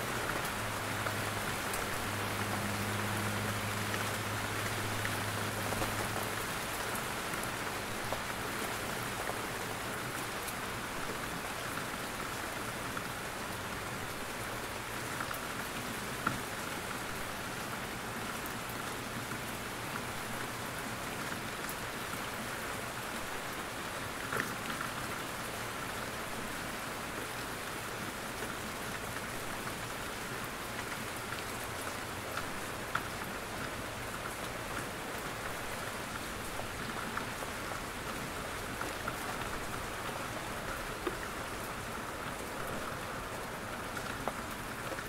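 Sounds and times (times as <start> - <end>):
steady rain: 0.0 - 45.0.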